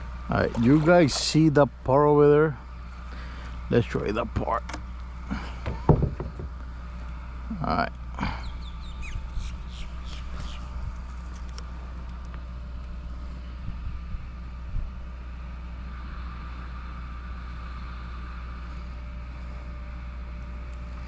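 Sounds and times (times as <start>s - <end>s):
low motor hum: 0.0s - 21.0s
brief knocks: 5.6s - 6.6s
short bird chirps: 8.4s - 10.8s.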